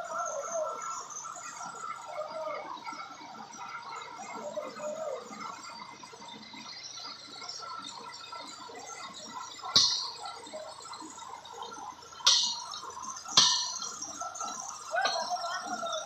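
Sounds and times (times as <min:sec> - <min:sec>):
low site noise: 0:00.0 - 0:16.0
sharp ringing knocks: 0:09.8 - 0:10.4, 0:12.2 - 0:14.2.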